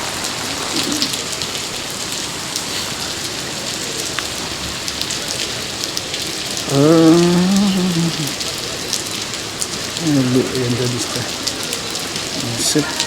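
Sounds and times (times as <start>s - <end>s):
heavy rain falling: 0.0s - 13.0s
raindrops ticking close by: 0.0s - 13.0s
person humming or calling: 6.7s - 8.5s.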